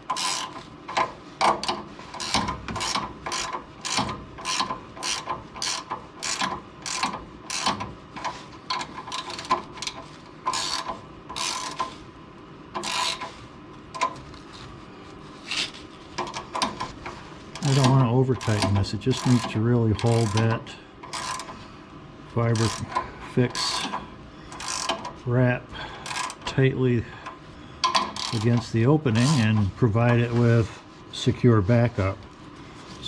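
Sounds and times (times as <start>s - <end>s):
ratchet wrench clicking: 0.1s - 0.6s, 2.2s - 11.9s, 12.8s - 13.3s, 17.6s - 21.5s, 22.6s - 25.1s, 26.0s - 26.4s, 27.8s - 29.4s.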